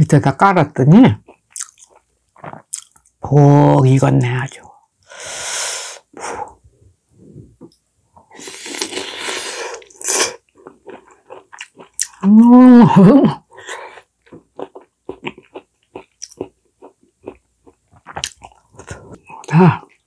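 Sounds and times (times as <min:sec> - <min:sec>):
person chewing: 0:01.2 - 0:03.2, 0:08.2 - 0:12.7, 0:13.4 - 0:20.0
person humming mmm: 0:12.2 - 0:13.4.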